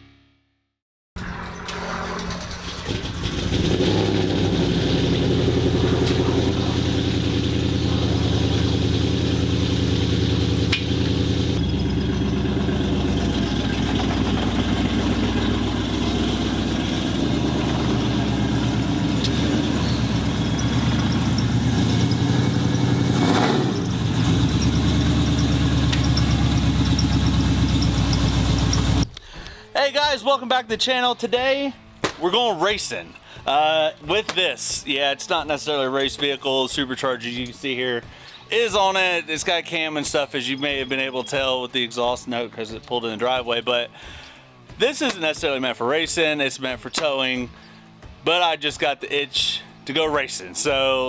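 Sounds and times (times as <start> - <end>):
lumpy truck engine exhaust: 1.2 - 29.4.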